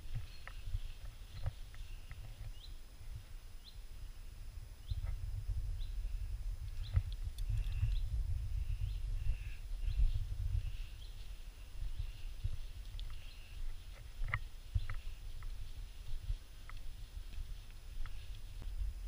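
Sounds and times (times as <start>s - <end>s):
bird chirping: 0.0s - 2.9s, 3.6s - 15.8s
rumble from walking: 0.0s - 19.0s.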